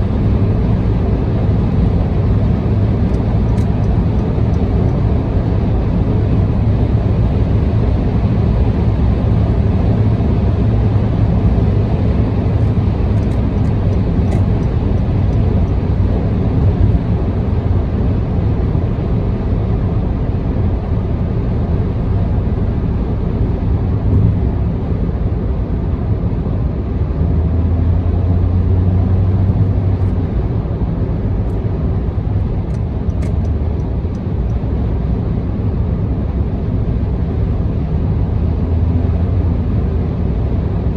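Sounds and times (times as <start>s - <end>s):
car tyre and engine drone: 0.0s - 40.9s
deep hum: 23.6s - 24.8s, 28.3s - 34.1s.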